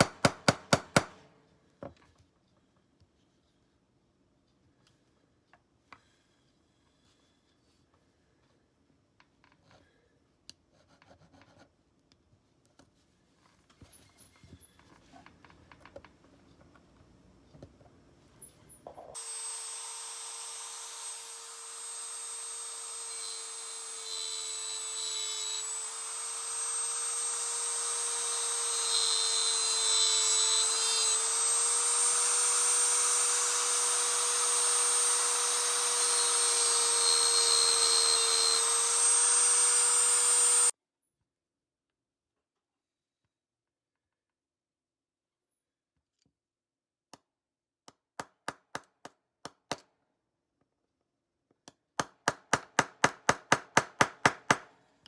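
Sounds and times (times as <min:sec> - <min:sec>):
power tool whining: 0:19.2 - 0:40.7.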